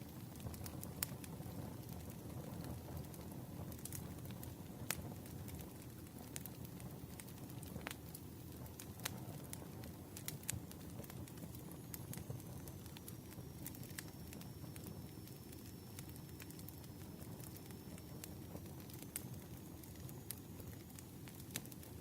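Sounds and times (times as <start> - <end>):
low rumble of flames: 0.0 - 22.0
burning wood popping: 0.2 - 22.0
faint high whistle: 12.0 - 20.9.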